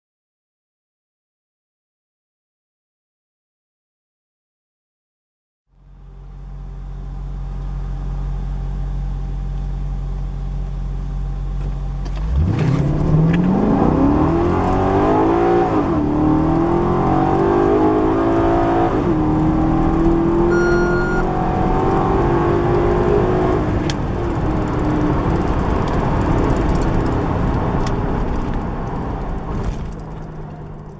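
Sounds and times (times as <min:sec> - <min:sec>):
car engine idling and accelerating: 0:05.7 - 0:30.9.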